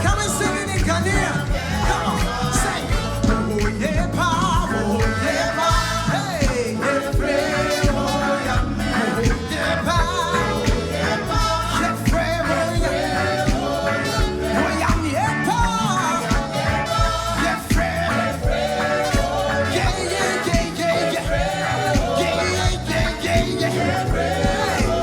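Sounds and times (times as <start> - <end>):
drums and bass: 0.0 - 25.0
person singing: 0.0 - 25.0.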